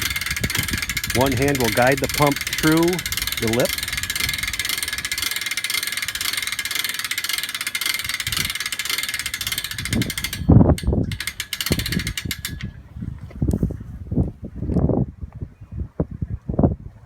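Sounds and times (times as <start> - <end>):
winch ratchet clicking: 0.0 - 12.8.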